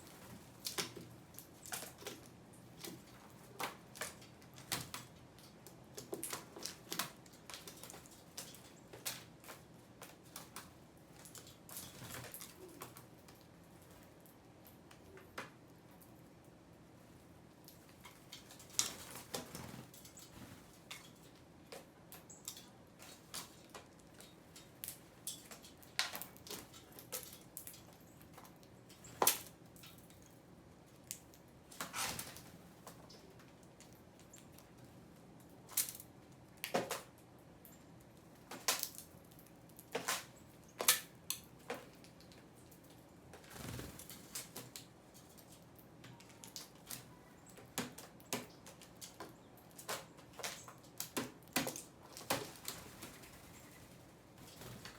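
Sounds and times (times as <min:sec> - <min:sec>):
birds pecking at seed: 0:17.2 - 0:54.9.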